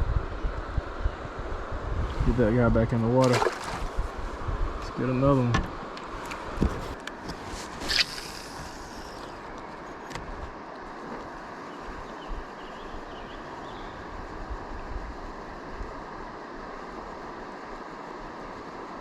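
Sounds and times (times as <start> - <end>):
river water flowing: 3.0 - 4.3.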